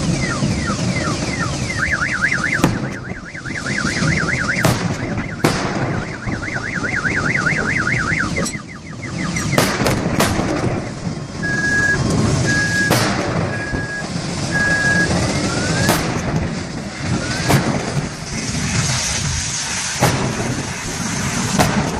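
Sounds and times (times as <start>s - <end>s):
car alarm warble: 0.0s - 10.2s, 10.9s - 16.4s
low fire rumble: 0.0s - 21.9s
sharp bangs and cracks: 0.0s - 21.9s
short beeps: 6.0s - 9.7s, 11.4s - 15.9s.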